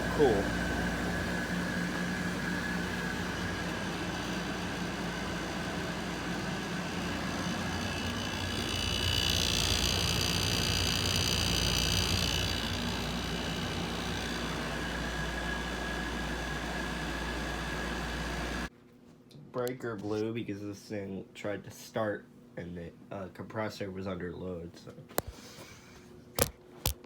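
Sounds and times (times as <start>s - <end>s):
compressor high hissing whine: 0.0s - 18.7s
air conditioners humming: 0.0s - 18.8s.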